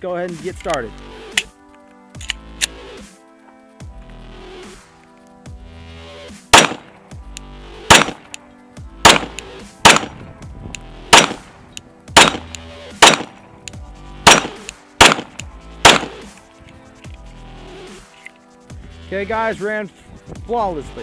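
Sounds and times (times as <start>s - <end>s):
pistol shots: 6.5s - 6.9s, 7.9s - 8.4s, 9.0s - 10.2s, 11.1s - 11.5s, 12.2s - 13.4s, 14.2s - 16.4s.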